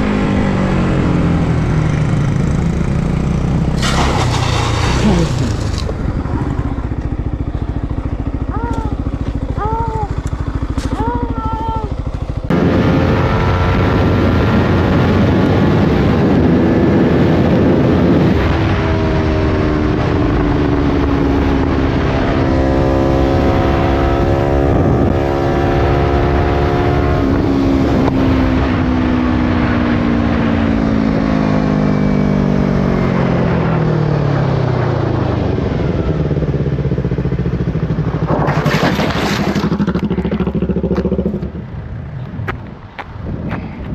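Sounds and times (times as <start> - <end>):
motorcycle engine running: 0.0 - 43.9
wind rushing: 37.8 - 43.9.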